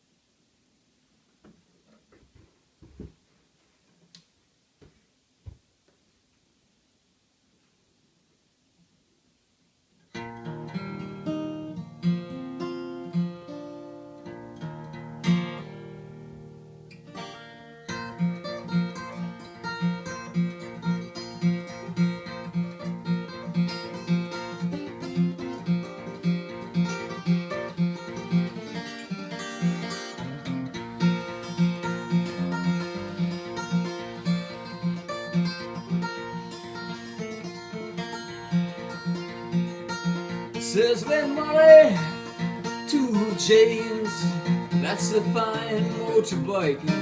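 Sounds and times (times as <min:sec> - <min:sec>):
acoustic guitar playing: 0:10.1 - 0:47.0.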